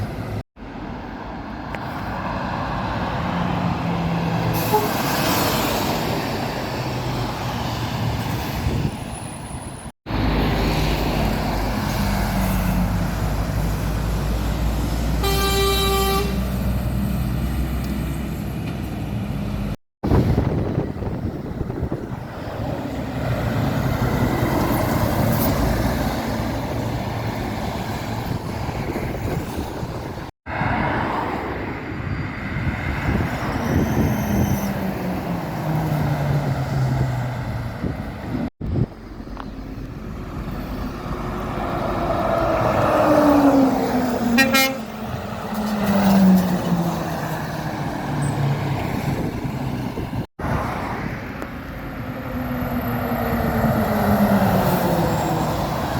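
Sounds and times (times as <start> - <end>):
lorries passing: 0.0 - 55.9
lorry horn toot: 15.2 - 16.5, 44.3 - 45.0.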